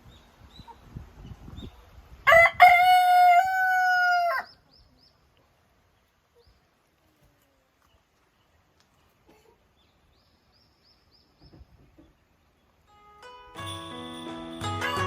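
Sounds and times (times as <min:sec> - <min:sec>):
rooster crowing: 0:02.3 - 0:04.5.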